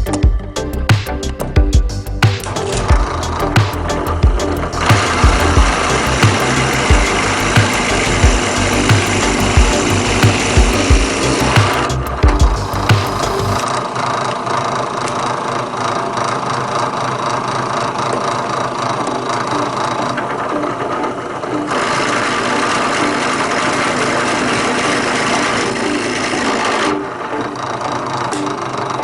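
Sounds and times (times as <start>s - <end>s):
drill press boring into wood: 17.9s - 28.9s.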